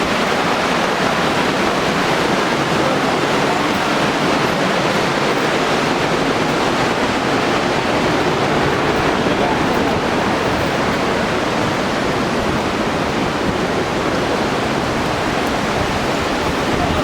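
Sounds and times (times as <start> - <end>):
river water rushing over boulders: 0.0 - 17.0.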